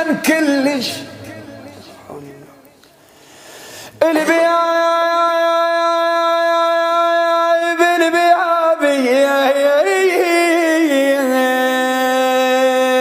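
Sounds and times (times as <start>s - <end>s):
man chanting a lament: 0.0s - 2.7s, 3.8s - 13.0s.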